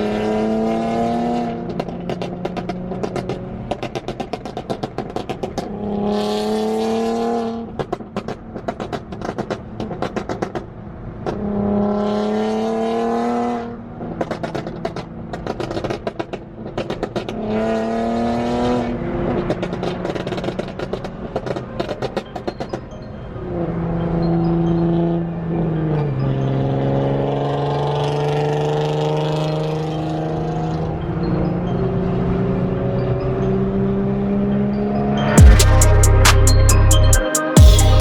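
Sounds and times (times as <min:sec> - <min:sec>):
car engine revving: 0:00.0 - 0:21.6, 0:35.1 - 0:38.0.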